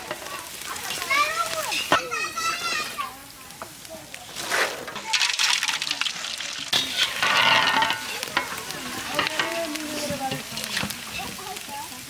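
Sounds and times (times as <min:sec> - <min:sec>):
chips sizzling in hot oil: 0:00.0 - 0:12.0.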